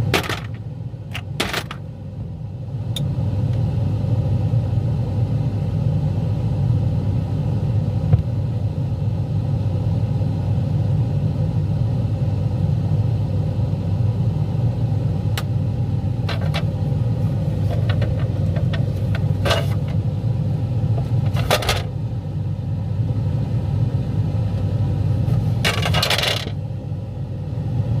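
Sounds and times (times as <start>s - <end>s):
ice maker humming: 16.1s - 22.0s.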